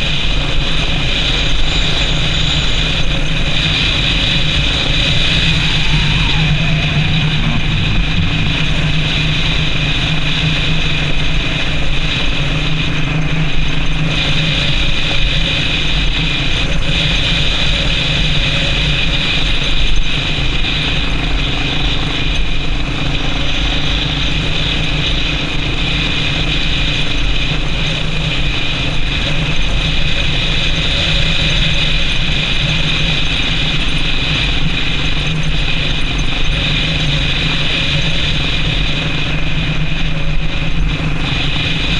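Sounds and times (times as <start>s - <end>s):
motorcycle engine running: 0.0s - 41.9s
motorcycle mechanical noise: 0.0s - 41.9s.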